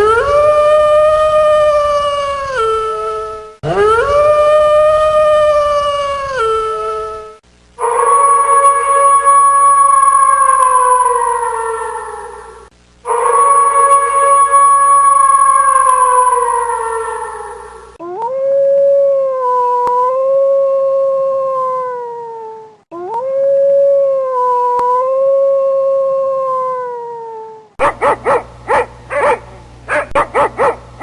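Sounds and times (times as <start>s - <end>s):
dog howling: 0.0s - 27.7s
dog yips and barks: 27.8s - 30.8s.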